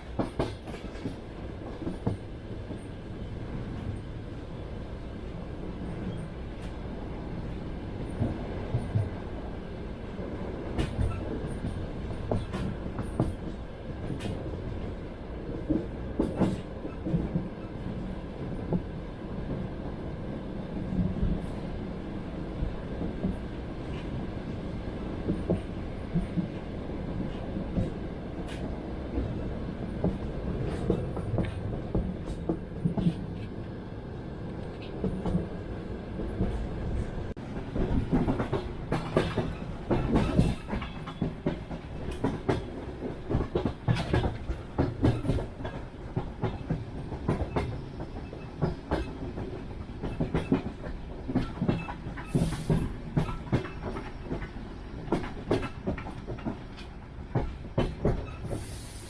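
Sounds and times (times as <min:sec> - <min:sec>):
train wheels clacking: 0:15.6 - 0:17.6, 0:37.6 - 0:59.0.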